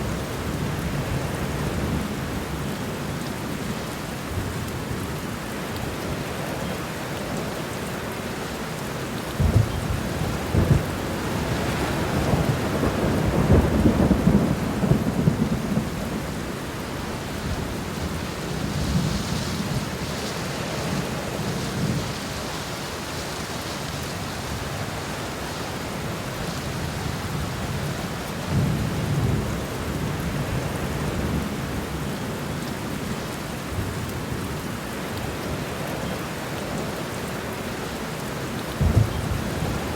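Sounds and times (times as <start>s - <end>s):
steady rain falling: 0.0s - 39.9s
thunder rumbling: 9.4s - 16.6s, 38.8s - 39.9s.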